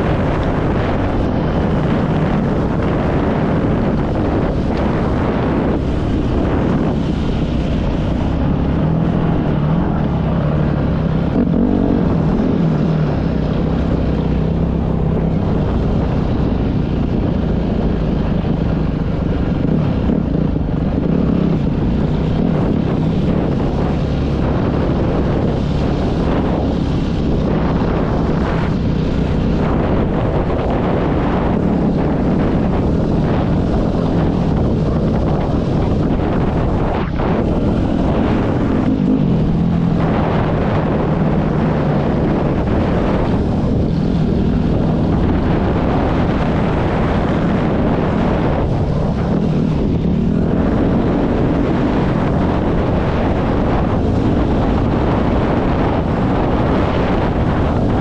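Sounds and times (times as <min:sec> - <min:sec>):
dirt bike engine revving: 0:00.0 - 0:15.3
wind rushing over microphone: 0:00.0 - 0:58.0.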